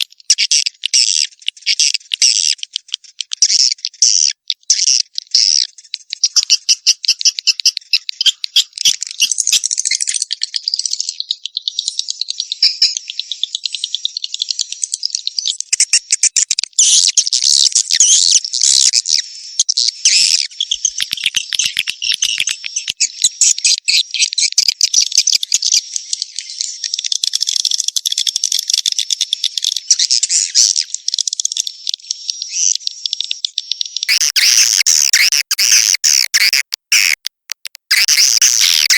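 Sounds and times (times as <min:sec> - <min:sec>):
swiftlets twittering: 0:34.1 - 0:38.9.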